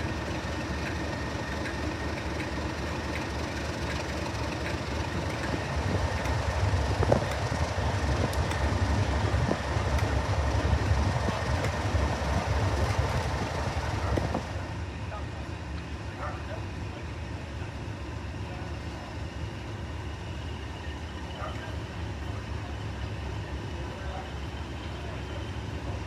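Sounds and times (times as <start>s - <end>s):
wheels clicking over rail joints: 0.0s - 14.8s
diesel train engine rumble: 0.0s - 26.0s.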